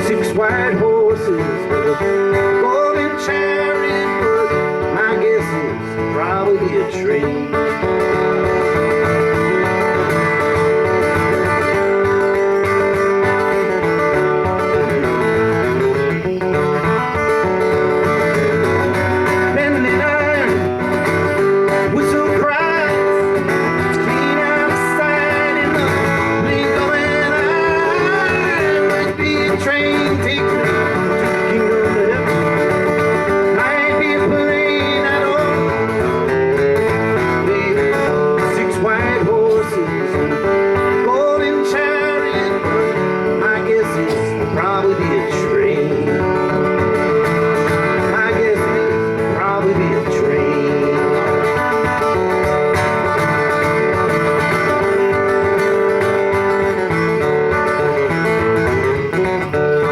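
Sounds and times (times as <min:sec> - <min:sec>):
acoustic guitar: 0:00.0 - 0:59.9
country band playing: 0:00.0 - 0:59.9.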